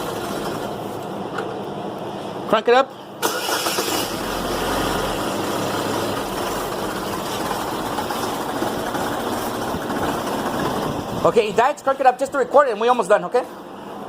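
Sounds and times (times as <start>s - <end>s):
car engine cranking and running: 0.0s - 1.1s, 3.2s - 12.0s.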